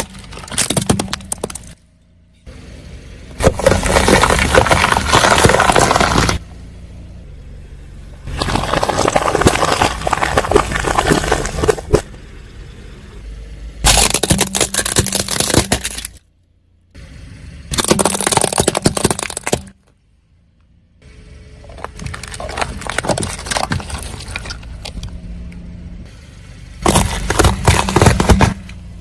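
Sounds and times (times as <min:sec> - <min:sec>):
tyres crushing brittle objects: 0:00.0 - 0:01.8, 0:03.4 - 0:06.4, 0:08.3 - 0:12.1, 0:13.8 - 0:16.2, 0:17.7 - 0:19.9, 0:21.6 - 0:25.1, 0:26.8 - 0:28.8.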